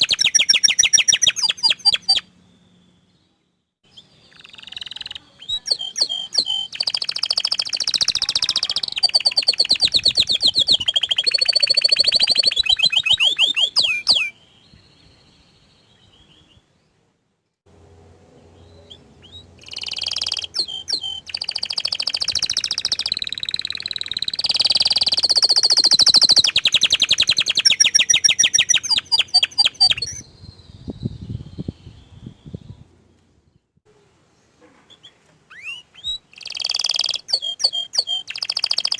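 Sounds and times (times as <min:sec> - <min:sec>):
canary singing trills: 0:00.0 - 0:16.6, 0:18.6 - 0:32.8, 0:34.9 - 0:38.9.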